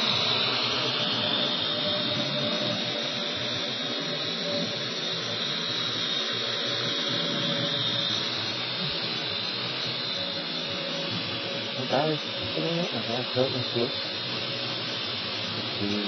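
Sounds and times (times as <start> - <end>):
drone motors whirring: 0.0 - 16.0.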